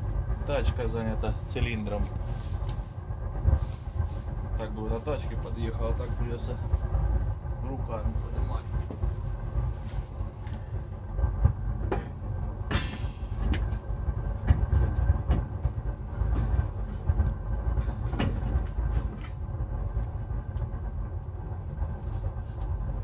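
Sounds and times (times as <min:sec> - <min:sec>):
steady low rumble: 0:00.0 - 0:23.0
metal knocks and clanks: 0:11.8 - 0:19.4.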